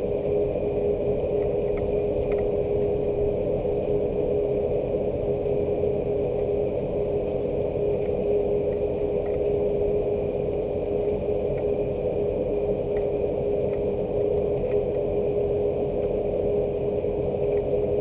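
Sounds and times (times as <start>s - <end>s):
constant machine hum: 0.0s - 18.0s
faint ticks: 1.3s - 2.9s, 7.9s - 9.5s, 11.0s - 11.7s, 12.9s - 15.1s, 17.3s - 17.8s.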